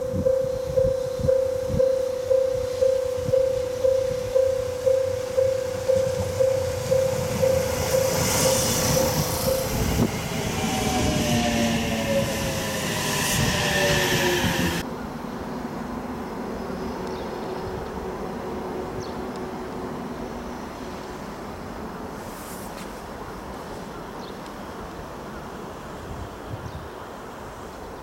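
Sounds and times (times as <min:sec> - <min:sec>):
repeating ringing tone: 0:00.0 - 0:09.9
distant train hum: 0:00.0 - 0:28.0
electric train rumbling on rails: 0:00.0 - 0:28.0.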